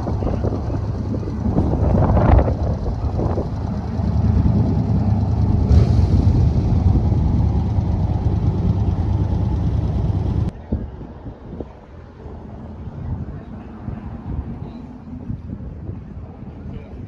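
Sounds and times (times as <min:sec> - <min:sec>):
motorcycle engine running: 0:00.0 - 0:10.5
wind noise on microphone: 0:00.0 - 0:17.0.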